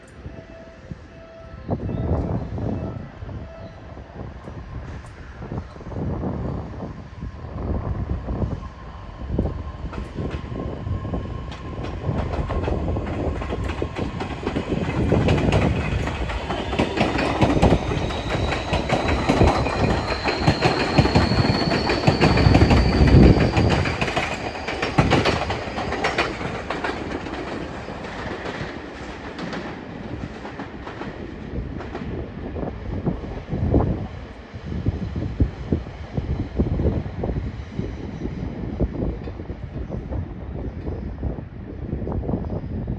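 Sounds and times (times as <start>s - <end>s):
wheels clacking over rail joints: 11.6s - 31.2s.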